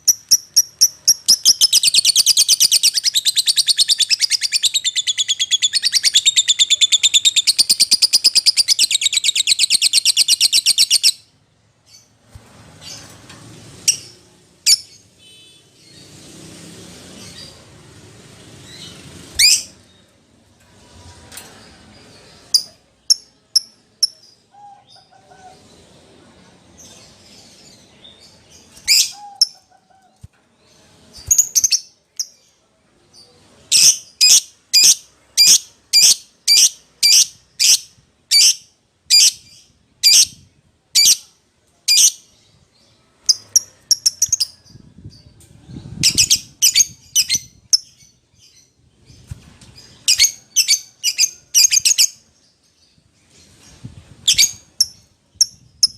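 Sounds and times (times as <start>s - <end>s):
bird chirping high-pitched: 0.0s - 11.3s, 18.6s - 20.1s, 22.3s - 25.2s, 26.8s - 32.5s, 33.7s - 41.3s, 43.2s - 52.3s, 53.7s - 55.9s.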